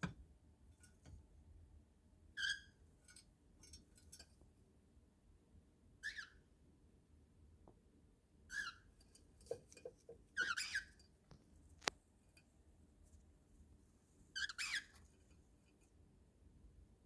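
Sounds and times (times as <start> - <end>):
cockatiel raspy chirps: 14.4 - 14.9.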